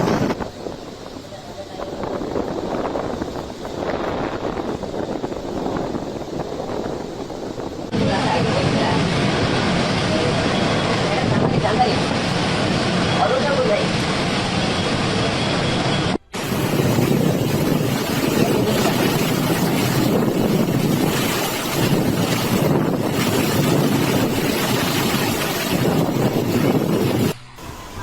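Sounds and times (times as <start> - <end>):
wind: 0.0 - 28.0
wind buffeting microphone: 0.0 - 28.0
surging water: 16.4 - 28.0.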